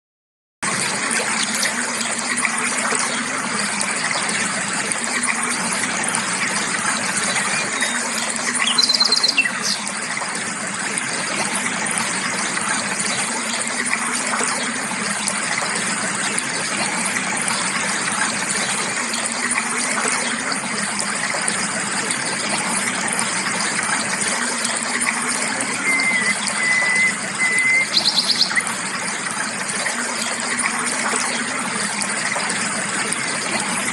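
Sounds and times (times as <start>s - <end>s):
creek flowing: 0.6s - 33.9s
bird calls and chirps: 7.3s - 9.9s, 25.6s - 28.7s.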